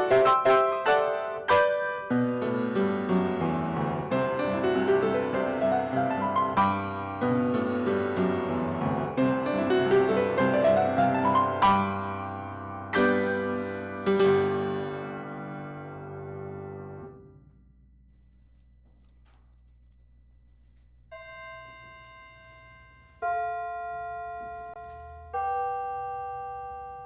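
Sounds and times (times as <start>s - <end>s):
piano music: 0.0s - 17.4s.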